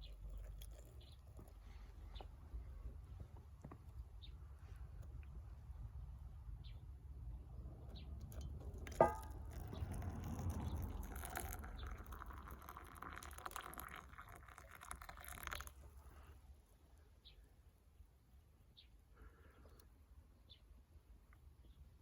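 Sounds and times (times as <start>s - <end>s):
liquid pouring into cup: 8.4s - 16.1s.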